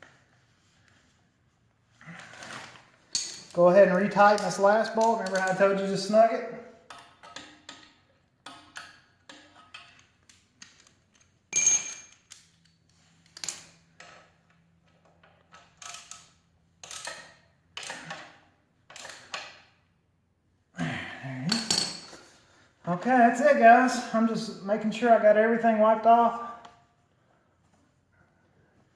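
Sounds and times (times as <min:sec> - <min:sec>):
sharp metallic clink: 0:11.5 - 0:12.2.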